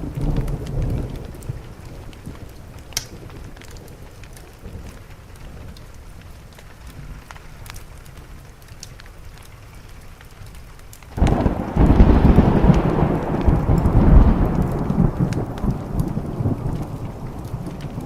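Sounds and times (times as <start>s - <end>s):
thunderclap rolling rumble: 0.0s - 6.2s, 11.2s - 18.0s
steady rain: 0.0s - 18.0s.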